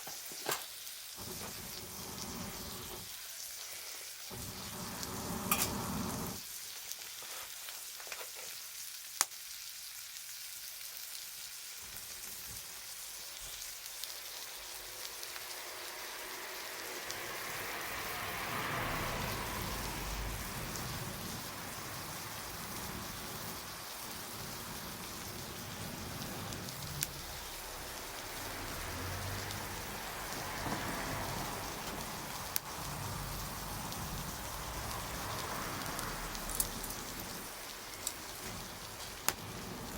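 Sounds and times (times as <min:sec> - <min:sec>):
campfire crackling and hissing: 0:01.0 - 0:39.9
burning wood popping: 0:20.4 - 0:39.9.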